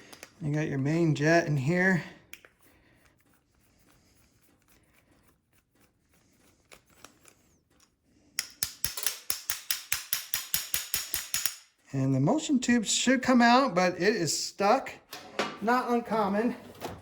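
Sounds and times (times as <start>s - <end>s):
metal parts clicking: 6.8s - 11.7s
hand tool rapid clicks: 8.4s - 11.7s.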